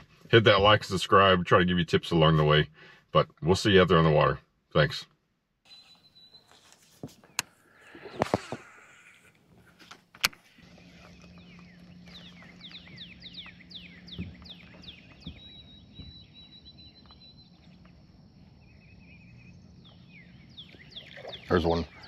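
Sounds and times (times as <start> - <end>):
bird whistles: 5.7 - 6.6
high bird trill: 5.7 - 8.0, 10.7 - 22.0.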